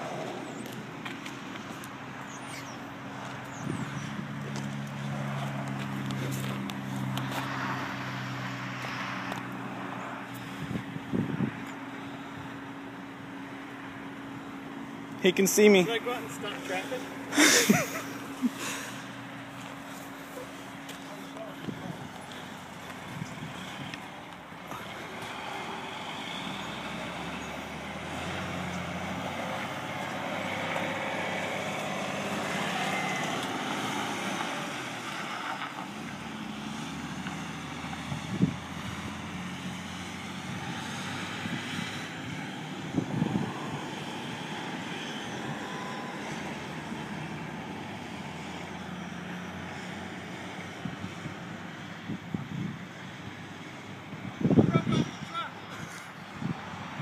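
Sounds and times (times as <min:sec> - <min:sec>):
heavy truck engine running: 0:09.3 - 0:54.5.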